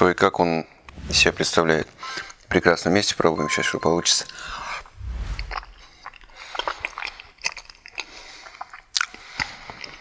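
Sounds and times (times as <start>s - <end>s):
person chewing food: 5.9s - 10.0s.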